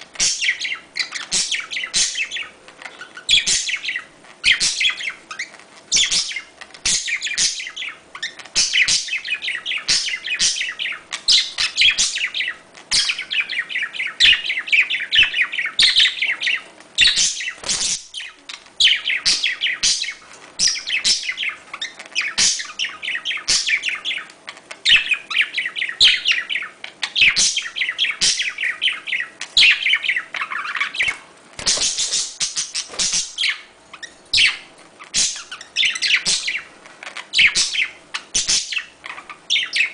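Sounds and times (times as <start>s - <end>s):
budgerigars chattering: 0.2s - 39.9s.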